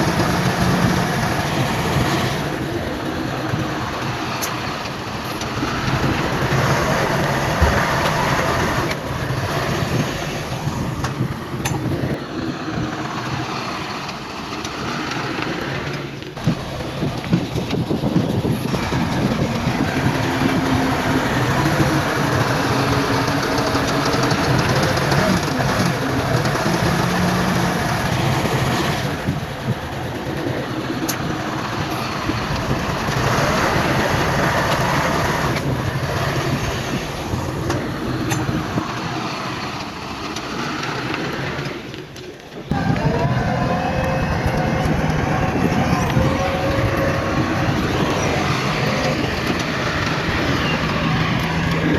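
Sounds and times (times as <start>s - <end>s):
diesel engine under load: 0.0s - 51.9s
steel tracks clanking: 0.0s - 51.9s.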